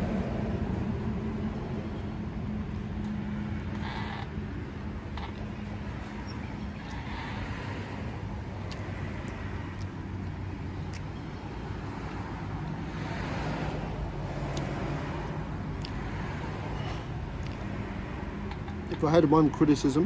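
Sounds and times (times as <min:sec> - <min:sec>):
chewing clicks: 0:10.9 - 0:11.1, 0:15.8 - 0:16.0.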